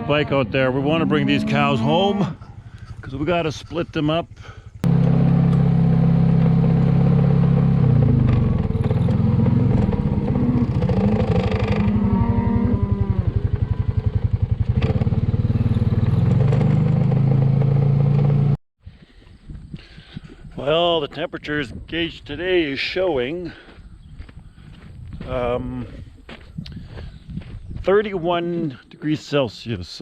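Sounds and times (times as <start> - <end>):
motorbike engine running: 1.5 - 18.6.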